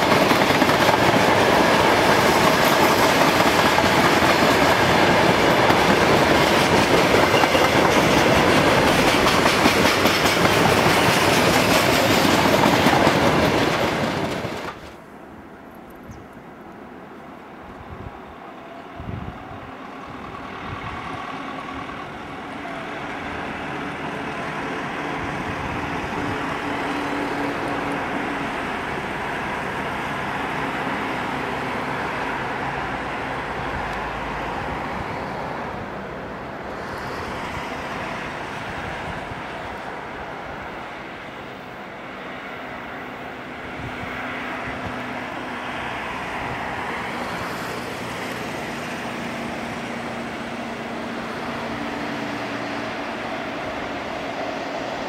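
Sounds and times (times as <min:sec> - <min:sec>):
train wheels rumbling: 0:00.0 - 0:15.1.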